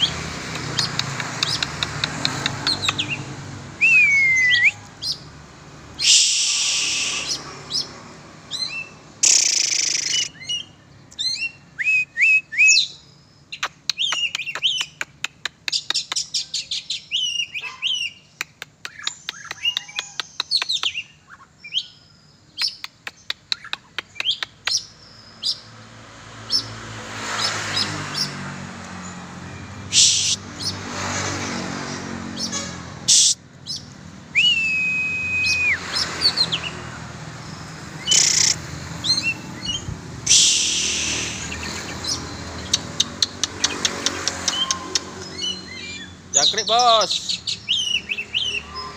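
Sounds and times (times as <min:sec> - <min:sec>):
rapid chattering clicks: 0:00.5 - 0:03.0, 0:22.6 - 0:24.8
bird singing: 0:00.8 - 0:05.3, 0:06.0 - 0:25.9, 0:33.6 - 0:48.9
loud bursts of hiss: 0:06.0 - 0:07.4, 0:40.2 - 0:41.6.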